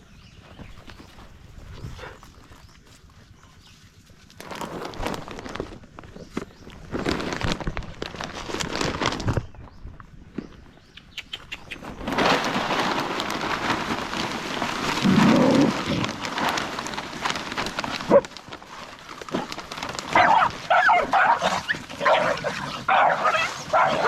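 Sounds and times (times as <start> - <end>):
dog barking and yelping: 20.1 - 24.0.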